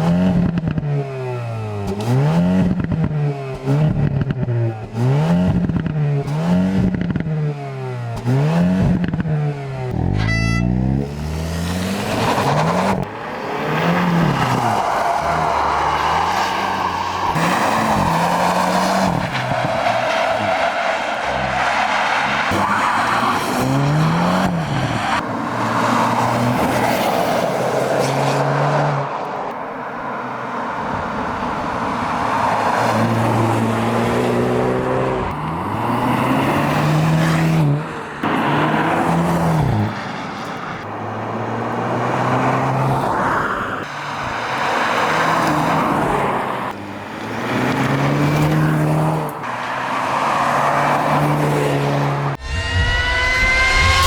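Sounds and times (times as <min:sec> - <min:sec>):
car engine revving hard: 0:00.0 - 0:03.0, 0:03.6 - 0:10.2.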